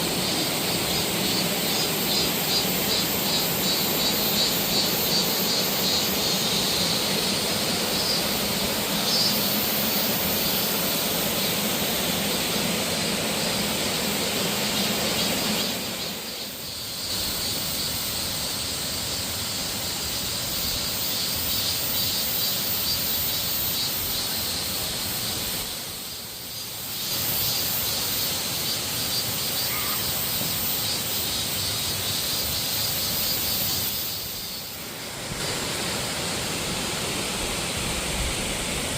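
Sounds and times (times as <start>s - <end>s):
waterfall rushing: 34.8s - 38.9s.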